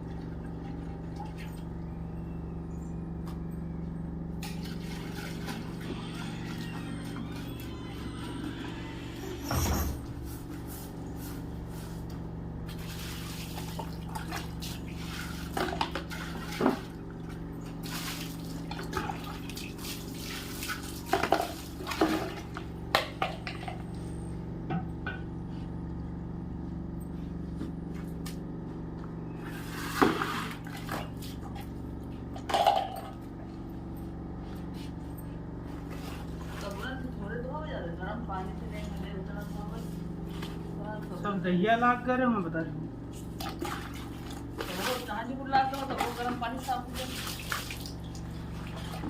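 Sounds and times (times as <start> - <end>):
steady low hum: 0.0 - 49.0
water splashing and pouring: 4.4 - 5.9, 12.7 - 17.2, 17.8 - 22.7, 45.8 - 49.0.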